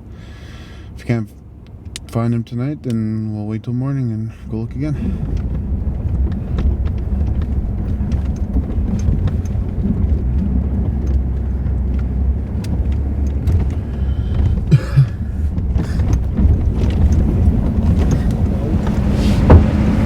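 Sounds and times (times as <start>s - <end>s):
vehicle engine and road rumble: 0.0s - 20.0s
clicks and rattles: 5.0s - 19.8s
sharp knocks: 13.4s - 19.9s.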